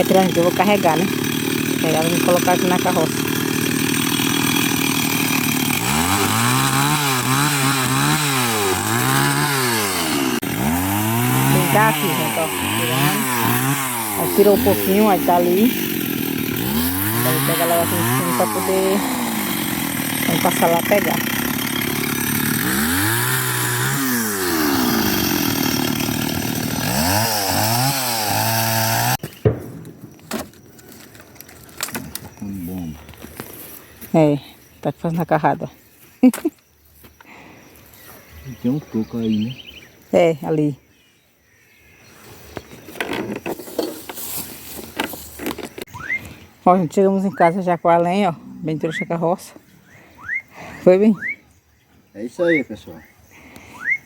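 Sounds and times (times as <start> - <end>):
chainsaw cutting wood: 0.0 - 32.3
sharp knocks: 29.2 - 30.6.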